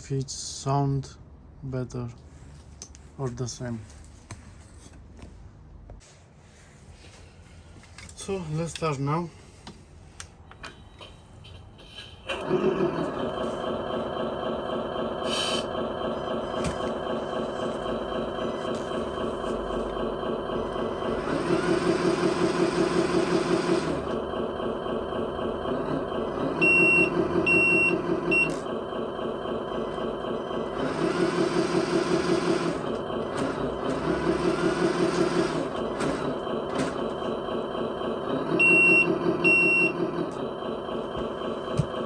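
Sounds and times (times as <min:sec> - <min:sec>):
simulated diesel engine from speaker: 0:00.0 - 0:04.0, 0:06.5 - 0:42.0
reversing beeper: 0:13.4 - 0:31.2, 0:37.0 - 0:42.0.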